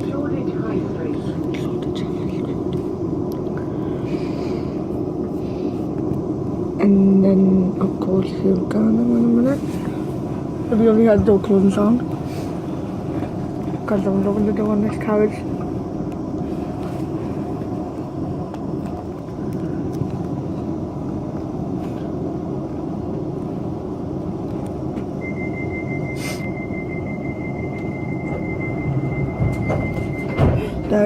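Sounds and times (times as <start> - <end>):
train rumble: 0.0 - 31.0
rapid high-pitched door warning beeps: 25.2 - 31.0.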